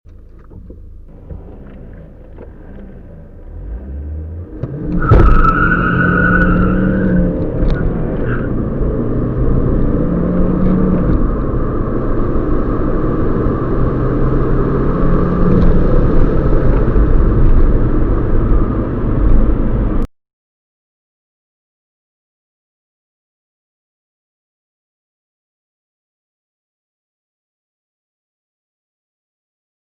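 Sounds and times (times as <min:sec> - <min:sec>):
car engine accelerating: 0:00.1 - 0:20.1.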